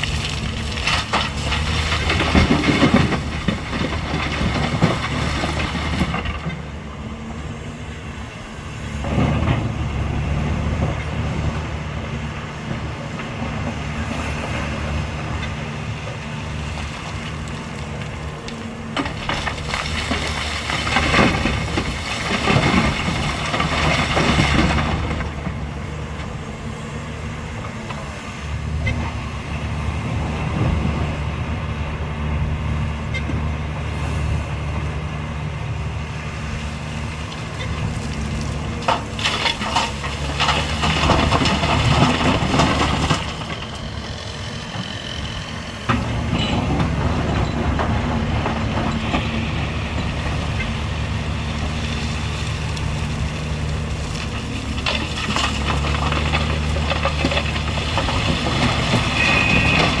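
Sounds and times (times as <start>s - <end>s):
scraping and clatter: 0.0s - 6.7s, 16.8s - 25.6s, 37.3s - 60.0s
diesel machinery running: 0.0s - 60.0s.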